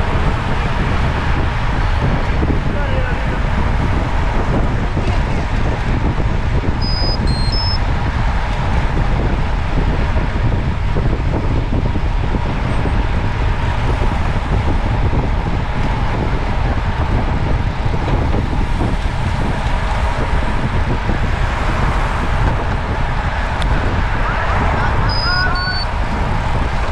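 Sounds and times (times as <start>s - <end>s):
wind and road noise: 0.0s - 26.9s
short electronic beeps: 6.8s - 7.8s, 25.1s - 25.9s.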